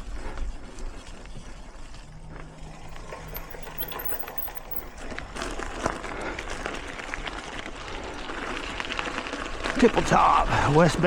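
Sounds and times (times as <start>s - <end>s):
bike chain and frame rattling: 3.2s - 5.6s.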